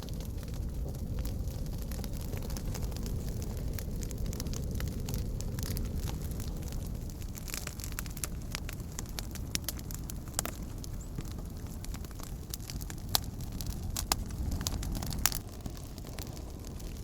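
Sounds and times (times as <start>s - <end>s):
campfire crackling and popping: 0.0s - 17.0s
low rumble of flames: 0.0s - 17.0s.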